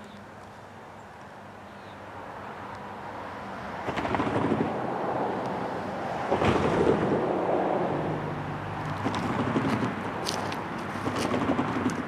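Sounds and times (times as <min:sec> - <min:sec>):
train wheels rumbling on rail: 0:03.8 - 0:05.4, 0:08.8 - 0:12.0.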